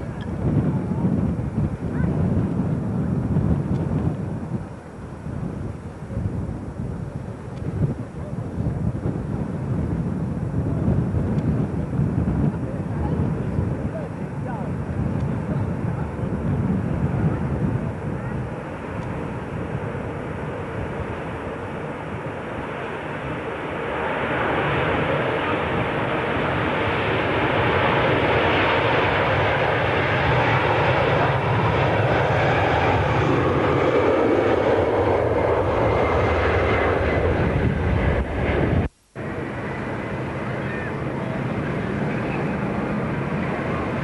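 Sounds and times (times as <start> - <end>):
airliner engines: 0.0 - 44.0.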